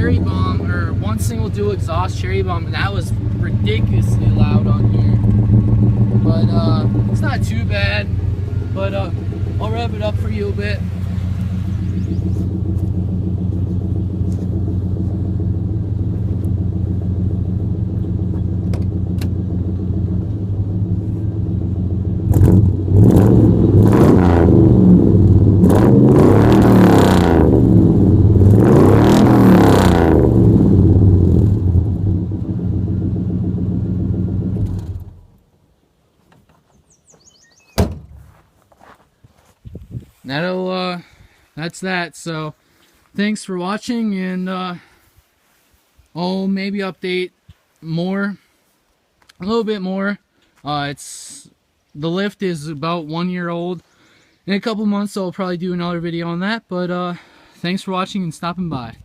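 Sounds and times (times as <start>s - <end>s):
truck engine idling and revving: 0.0s - 35.4s.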